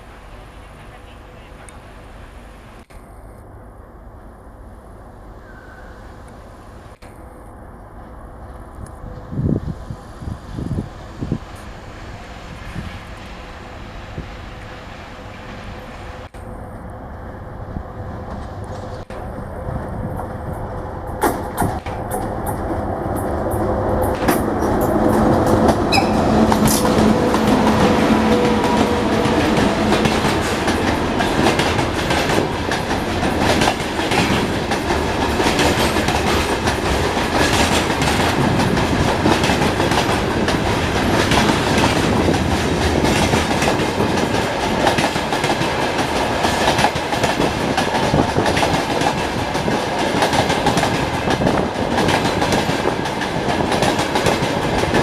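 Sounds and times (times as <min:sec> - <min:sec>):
freight train rumbling past: 0:00.0 - 0:55.0
wheels clicking over rail joints: 0:18.2 - 0:55.0.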